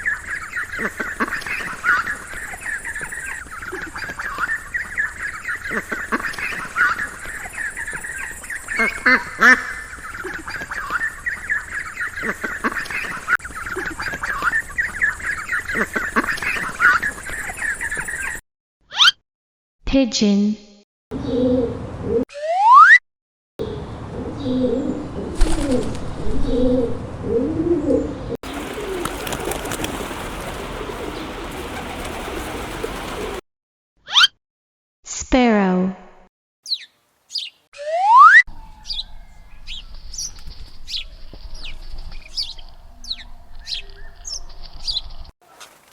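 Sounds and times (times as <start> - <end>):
pigeon cooing: 21.2 - 22.2, 26.4 - 33.4
ducklings peeping: 28.4 - 33.4.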